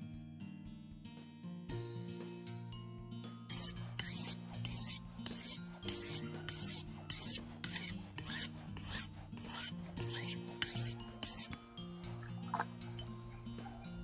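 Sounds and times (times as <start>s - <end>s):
knife scraping fish scales: 3.5s - 12.8s.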